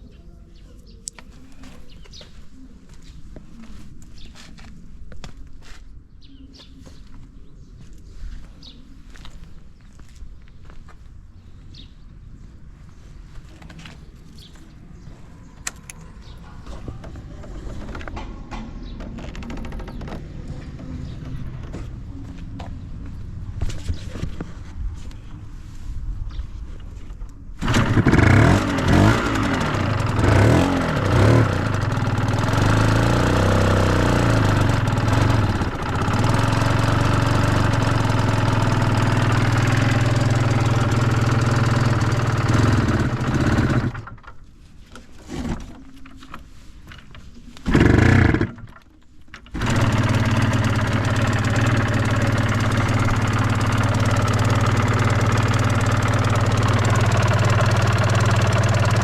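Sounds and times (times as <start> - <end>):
motorcycle engine revving and idling: 13.0 - 24.4, 27.5 - 44.4, 46.9 - 59.0.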